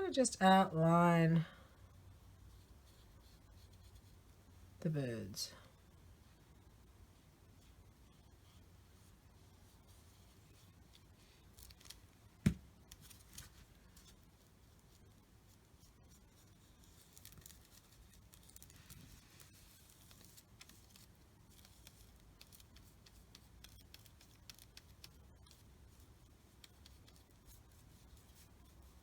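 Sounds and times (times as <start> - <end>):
paintbrush scratching on paper: 2.5 - 4.2.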